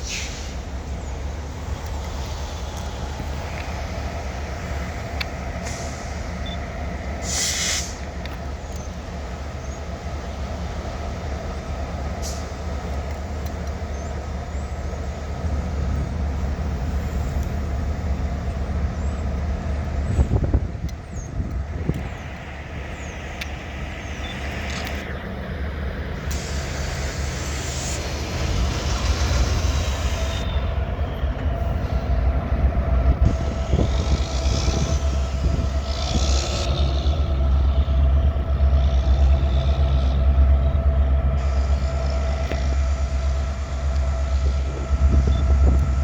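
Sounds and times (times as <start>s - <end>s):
air-brake hiss: 0.0s - 0.8s, 5.6s - 6.4s, 7.2s - 8.2s, 26.2s - 30.6s
diesel locomotive engine drone: 0.0s - 46.0s.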